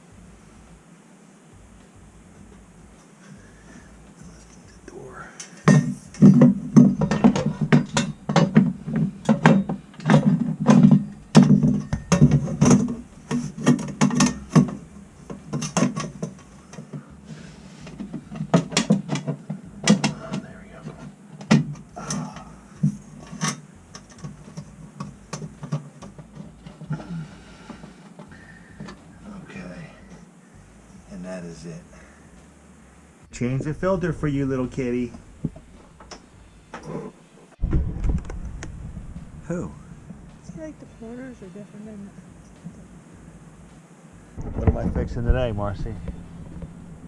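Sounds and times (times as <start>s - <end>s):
sheet metal clanks and rattles: 5.6s - 16.5s.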